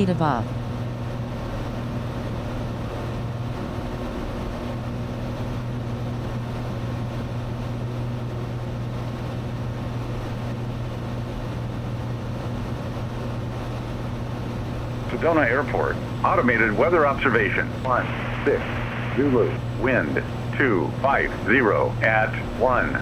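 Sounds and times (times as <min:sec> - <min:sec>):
aircraft engine drone in cabin: 0:00.0 - 0:23.0.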